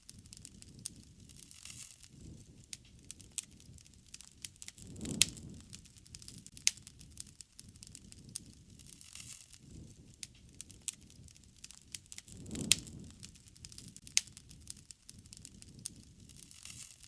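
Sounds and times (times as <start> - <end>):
low rush of flames: 0.0 - 17.0
wood fire crackling: 0.0 - 17.0.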